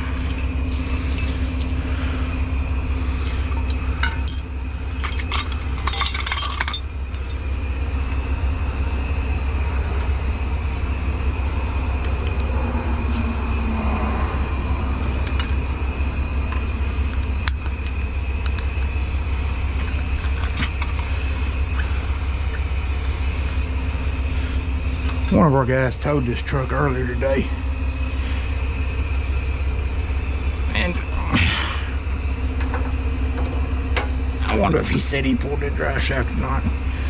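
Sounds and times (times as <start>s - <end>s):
metal tools clinking: 0.0s - 1.9s, 3.3s - 7.5s, 24.8s - 25.6s
truck engine idling: 0.0s - 37.0s.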